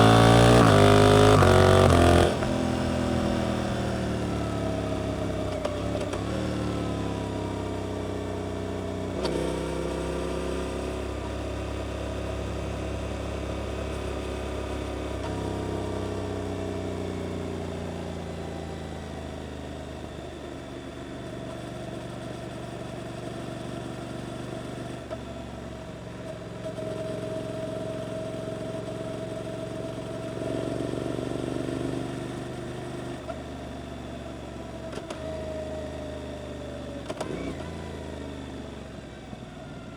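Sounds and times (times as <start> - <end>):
motorcycle engine: 0.0 - 18.3.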